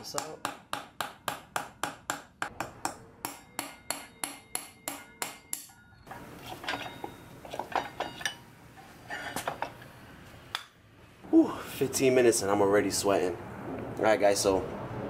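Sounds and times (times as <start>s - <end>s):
hammer striking metal axle: 0.0s - 8.4s
metallic clinks and clatter: 5.6s - 8.4s.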